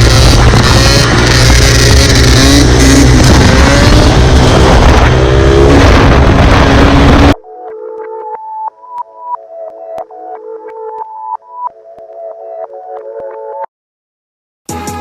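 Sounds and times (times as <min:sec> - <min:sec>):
dirt bike engine revving: 0:00.0 - 0:07.4.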